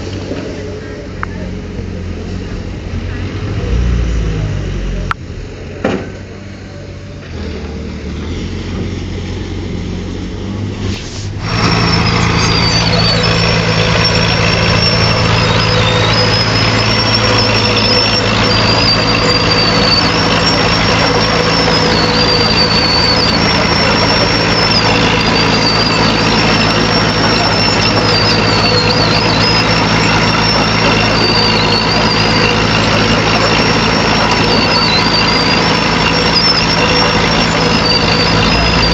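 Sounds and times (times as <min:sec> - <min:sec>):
diesel engine running: 0:00.0 - 0:38.9
high thin squeal: 0:10.1 - 0:38.9.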